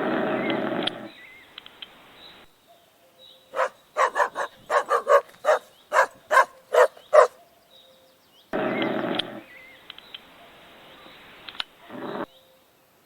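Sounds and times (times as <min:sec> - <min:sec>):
dog barking: 0:03.5 - 0:07.5.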